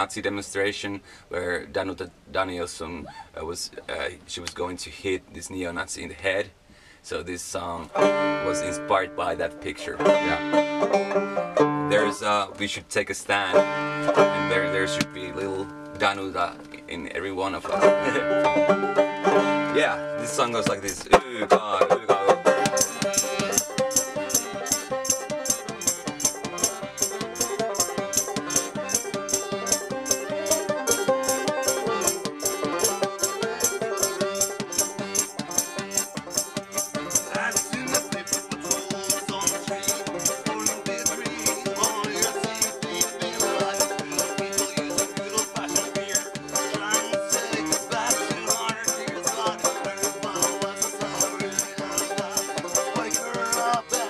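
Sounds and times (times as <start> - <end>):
picked banjo: 0.0 - 2.9, 7.4 - 54.0
person singing: 21.6 - 24.9, 25.5 - 34.9, 37.0 - 54.0
shaken hand percussion: 22.6 - 54.0.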